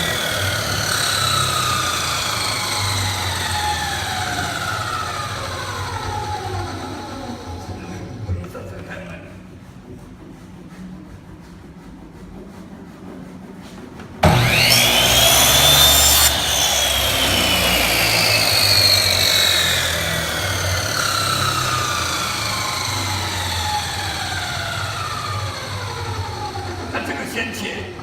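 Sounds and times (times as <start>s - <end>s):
electric power saw whining: 0.0s - 8.3s, 14.2s - 28.0s
saw cutting through wood: 0.0s - 9.0s, 14.2s - 28.0s.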